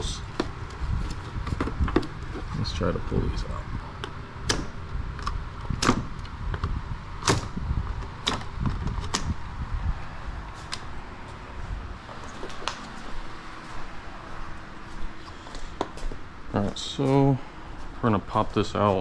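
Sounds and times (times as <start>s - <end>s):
low steady rumble: 0.0s - 19.0s
sharp plastic clicks and knocks: 4.0s - 9.4s.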